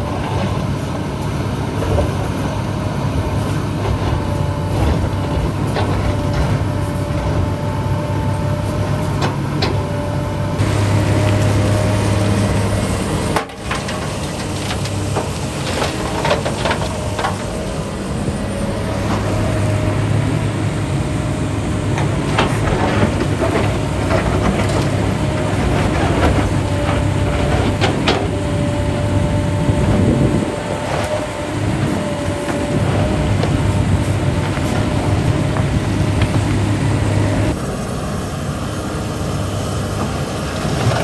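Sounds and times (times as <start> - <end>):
heavy machinery engine running: 0.0 - 41.0.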